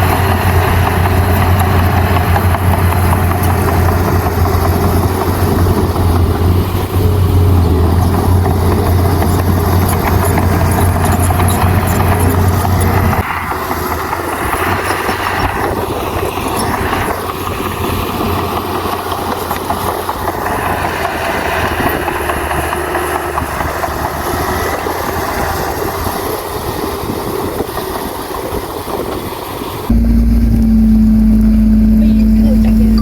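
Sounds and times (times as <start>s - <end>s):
diesel engine running: 0.0s - 28.2s, 29.0s - 33.0s
machinery rattling clatter: 0.0s - 33.0s
steady tonal hum: 29.9s - 33.0s.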